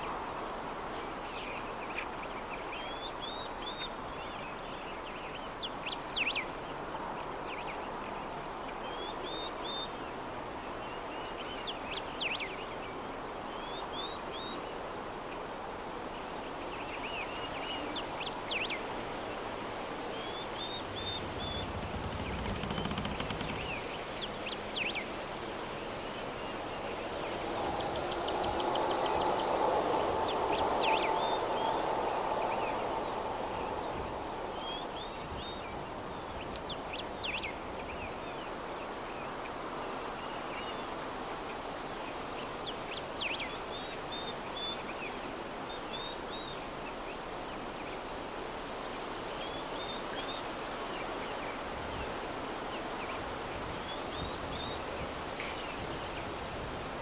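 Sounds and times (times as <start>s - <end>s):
soft outdoor breeze: 0.0s - 57.0s
small birds chirping: 16.8s - 25.2s.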